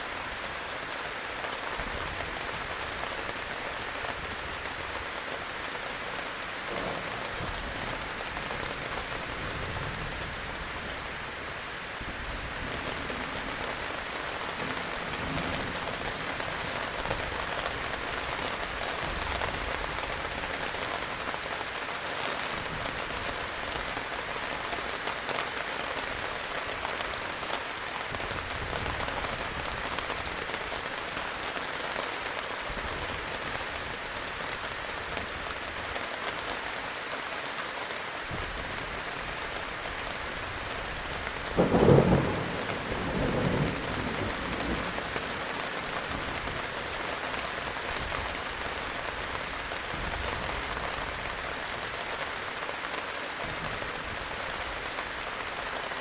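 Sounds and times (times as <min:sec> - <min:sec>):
heavy rain: 0:00.0 - 0:56.0
low thunder rumbling: 0:06.7 - 0:10.9, 0:40.8 - 0:46.7
thunder clap: 0:41.5 - 0:45.4.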